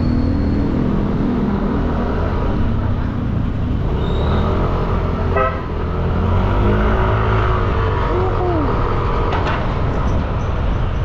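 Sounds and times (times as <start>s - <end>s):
horn toot: 5.3s - 5.8s.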